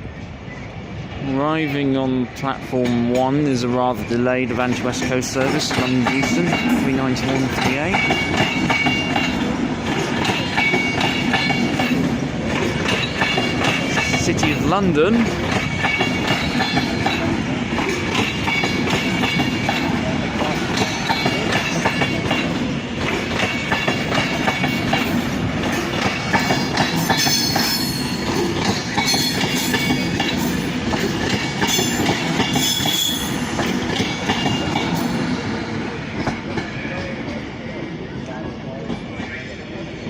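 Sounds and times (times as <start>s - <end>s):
wheels clattering over rail joints: 4.6s - 35.3s
high-pitched wheel and brake squeal: 27.2s - 28.2s, 32.5s - 33.4s.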